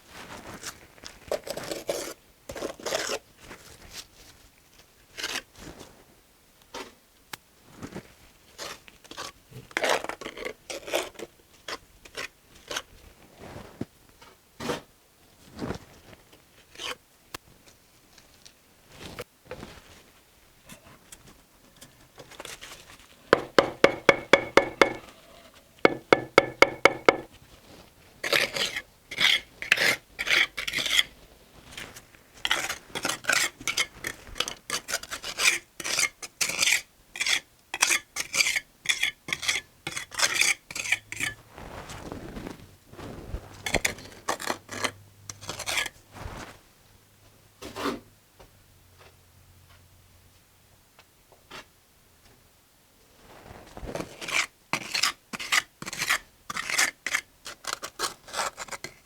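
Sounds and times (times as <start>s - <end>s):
trowel scraping mortar: 23.3s - 27.3s, 28.2s - 31.1s, 31.8s - 41.4s, 43.6s - 46.5s, 54.1s - 59.0s.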